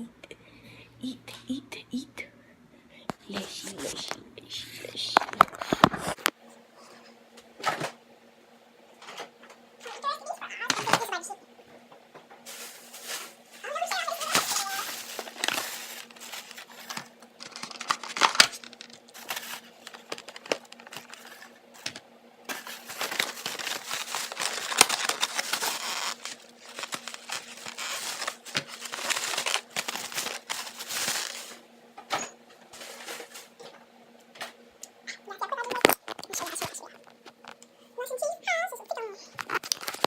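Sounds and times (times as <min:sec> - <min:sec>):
rustling and crinkling: 0:12.2 - 0:31.6, 0:32.7 - 0:33.6, 0:39.4 - 0:40.0.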